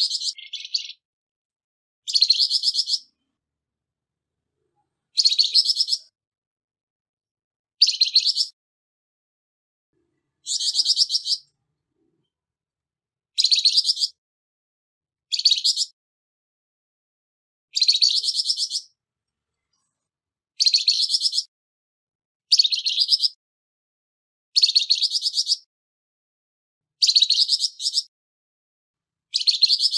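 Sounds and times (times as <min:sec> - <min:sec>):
bird rasping trilled calls: 0:00.0 - 0:01.0, 0:02.1 - 0:03.1, 0:05.2 - 0:06.1, 0:07.8 - 0:08.6, 0:10.4 - 0:11.5, 0:13.4 - 0:14.2.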